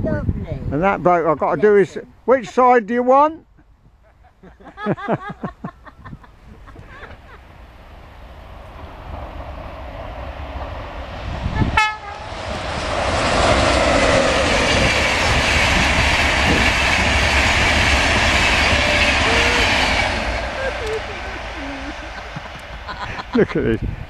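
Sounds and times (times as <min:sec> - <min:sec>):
train wheels rushing on rail: 0:05.3 - 0:24.0
train horn toot: 0:11.5 - 0:12.5, 0:18.2 - 0:21.5.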